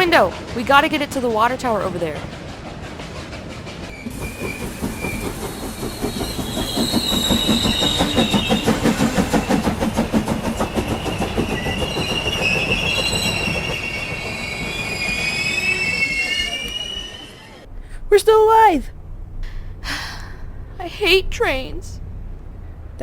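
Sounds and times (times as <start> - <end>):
wheels squealing: 0.0 - 17.7
train rhythmic clatter: 0.0 - 19.8.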